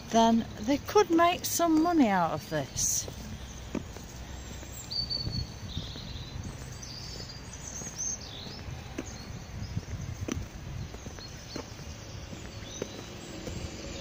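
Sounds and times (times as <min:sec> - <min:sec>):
footsteps on pavement: 0:00.0 - 0:14.0
low street rumble: 0:00.0 - 0:14.0
bird chirps: 0:03.2 - 0:10.0, 0:10.8 - 0:14.0.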